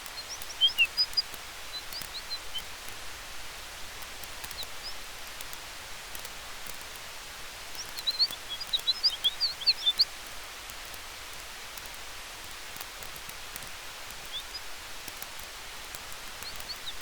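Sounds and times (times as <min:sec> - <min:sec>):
campfire crackling: 0:00.0 - 0:17.0
wind through trees: 0:00.0 - 0:17.0
high bird chirps: 0:00.2 - 0:02.7, 0:07.8 - 0:10.1, 0:16.4 - 0:17.0.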